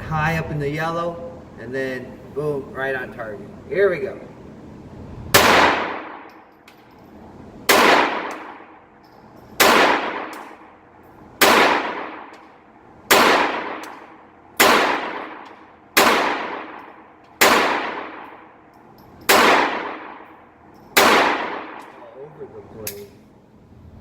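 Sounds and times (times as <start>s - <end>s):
pistol shots in indoor range: 5.3s - 7.0s, 7.7s - 22.0s.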